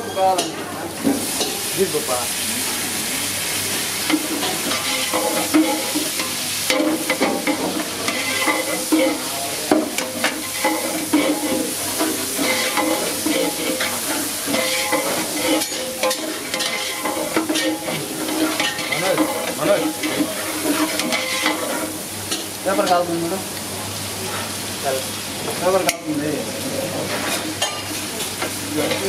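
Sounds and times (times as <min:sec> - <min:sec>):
food sizzling in hot oil: 0:00.0 - 0:29.0
ladle scraping a cooking pot: 0:10.4 - 0:21.8.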